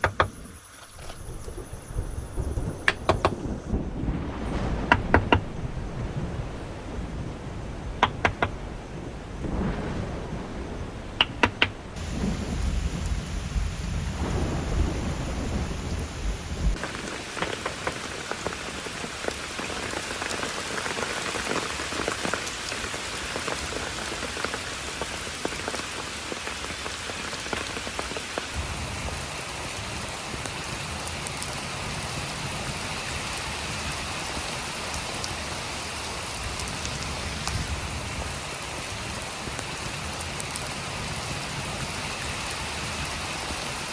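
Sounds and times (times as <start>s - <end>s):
heavy rain falling: 0.0s - 43.9s
low thunder rumbling: 1.0s - 19.4s, 28.5s - 34.4s
sharp snaps: 8.0s - 8.6s, 11.2s - 11.8s.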